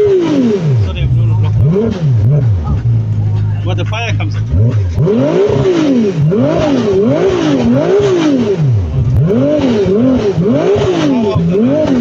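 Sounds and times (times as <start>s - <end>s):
car engine revving in blips: 0.0s - 12.0s.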